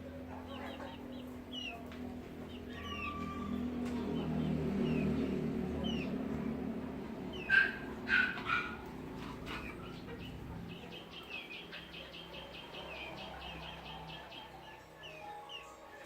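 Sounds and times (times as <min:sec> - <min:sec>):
chickens calling: 0:00.0 - 0:16.0.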